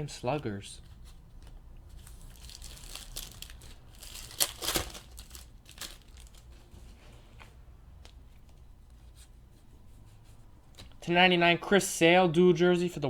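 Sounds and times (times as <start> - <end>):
card pack wrapper crinkling: 1.4 - 6.7.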